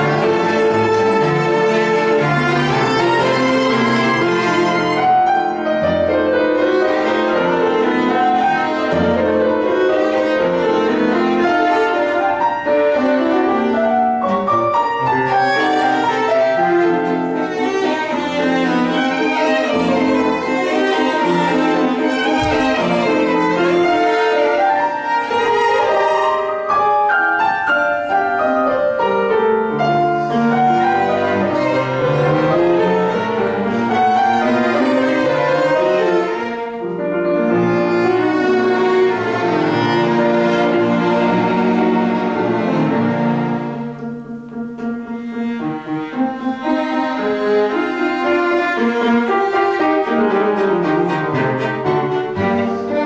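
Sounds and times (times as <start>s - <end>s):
bowed string lines: 0.0s - 26.5s
piano: 0.0s - 53.0s.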